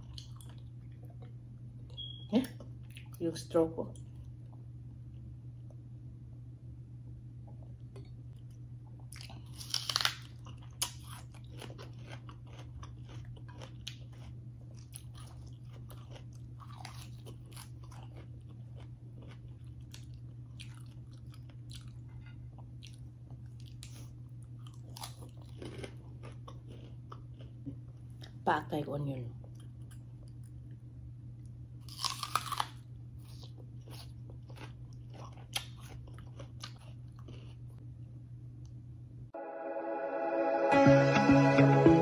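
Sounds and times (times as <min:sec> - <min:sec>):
steady low hum: 0:00.0 - 0:32.0
person chewing crunchy leaves: 0:08.4 - 0:28.3, 0:31.8 - 0:37.8.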